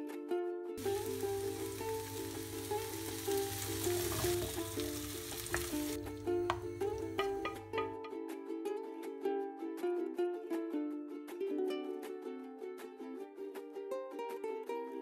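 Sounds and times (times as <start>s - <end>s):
plucked string background music: 0.0s - 15.0s
vegetables sizzling in a pan: 0.8s - 8.0s
wooden spoon stirring: 0.8s - 8.0s.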